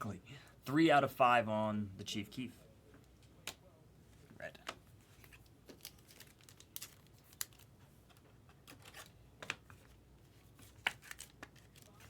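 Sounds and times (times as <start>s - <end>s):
trading cards rustling and tapping: 10.6s - 12.0s.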